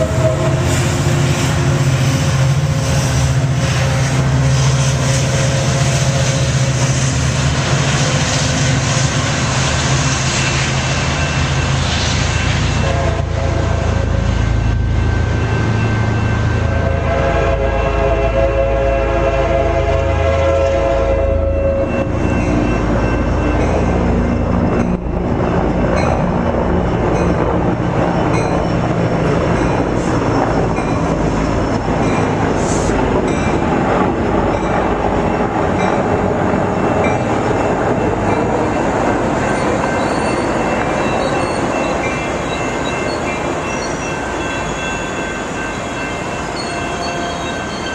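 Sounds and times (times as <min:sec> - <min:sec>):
train horn blast: 0:00.0 - 0:03.2, 0:12.7 - 0:14.4, 0:16.7 - 0:22.1
diesel locomotive running: 0:00.0 - 0:47.9
train wheels clattering on rails: 0:21.8 - 0:47.9.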